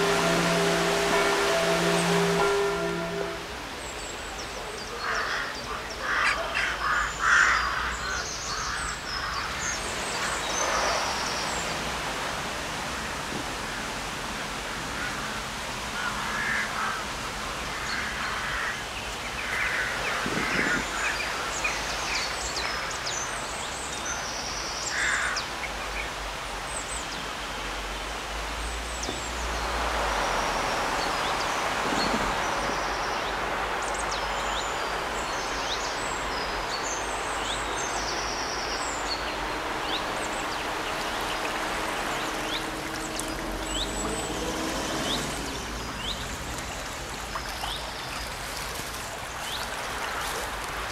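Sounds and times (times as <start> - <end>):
crows cawing: 5.0 - 9.5, 16.0 - 17.1, 17.7 - 18.8, 19.4 - 21.1, 24.9 - 25.4.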